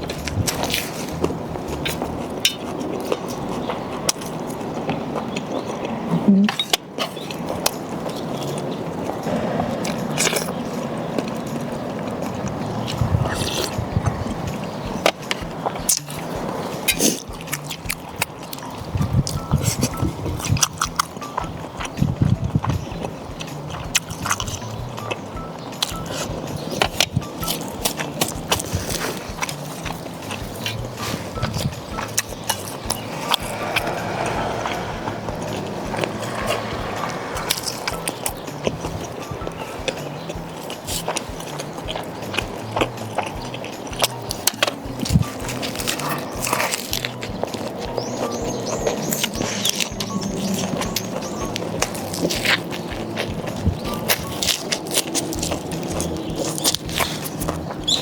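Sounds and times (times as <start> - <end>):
biting and chewing: 0.0 - 58.0
crisp crunching bursts: 25.8 - 58.0.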